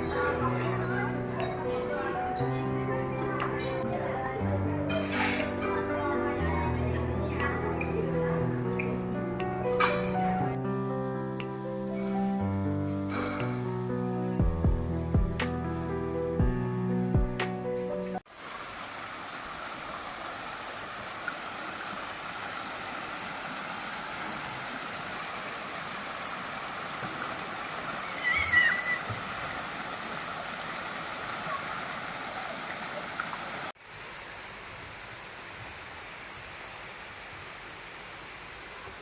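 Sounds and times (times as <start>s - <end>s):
rush of running water: 18.2s - 39.0s.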